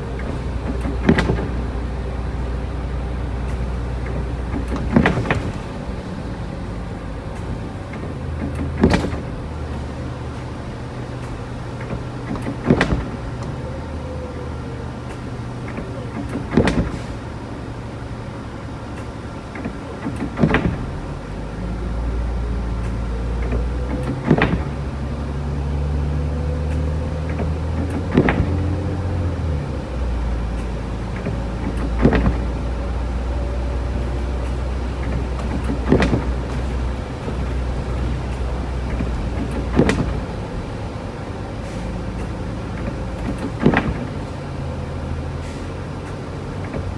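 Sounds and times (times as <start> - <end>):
engine and road hum: 0.0 - 46.9
sharp thumps: 30.4 - 46.9.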